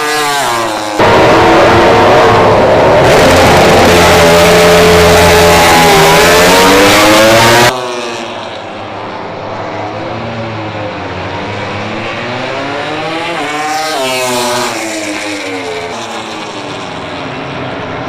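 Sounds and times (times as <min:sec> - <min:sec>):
racing motorcycle engine at high revs: 0:00.0 - 0:08.7, 0:11.1 - 0:17.6
distant motorcycle engine: 0:00.0 - 0:09.5.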